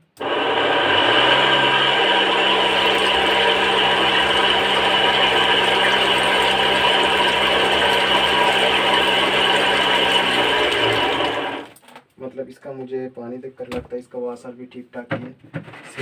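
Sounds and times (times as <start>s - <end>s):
pump motor humming with whine: 0.0s - 11.8s
rough grinding noise: 0.0s - 11.8s.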